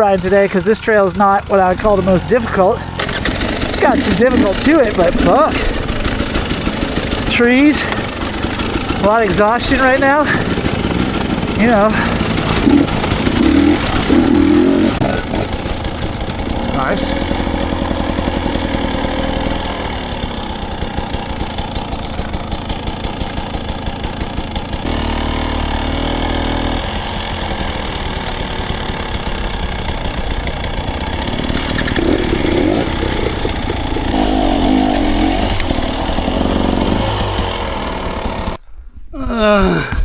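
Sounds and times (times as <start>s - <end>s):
dirt bike engine chugging: 0.0s - 38.6s.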